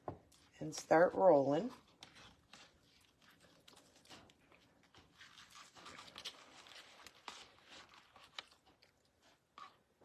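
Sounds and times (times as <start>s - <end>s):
cabbage leaves rustling and crinkling: 5.0s - 8.8s.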